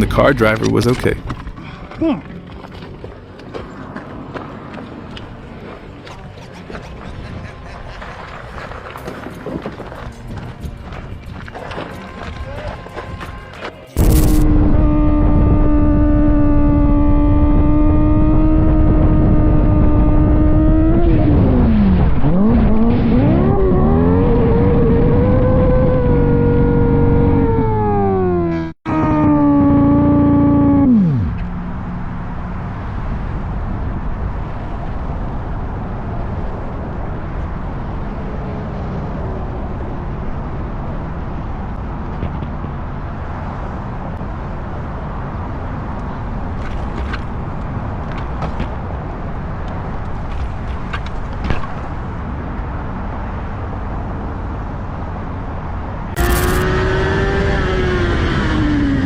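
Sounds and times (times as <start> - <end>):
wind and road rush: 0.0 - 59.0
motorcycle engine revving: 14.0 - 32.3, 56.1 - 59.0.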